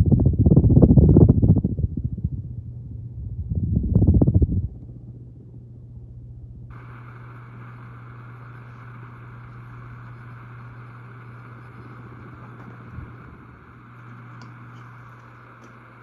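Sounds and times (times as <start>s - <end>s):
ceiling fan motor hum: 0.0s - 16.0s
low rumble: 0.0s - 16.0s
airy hiss: 6.7s - 16.0s.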